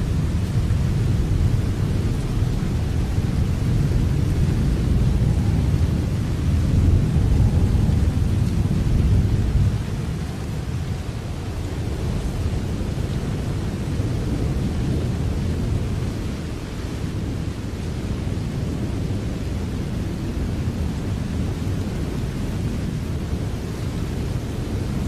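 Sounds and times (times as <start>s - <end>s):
deep rumble: 0.0s - 13.2s
steady rain: 0.0s - 25.0s.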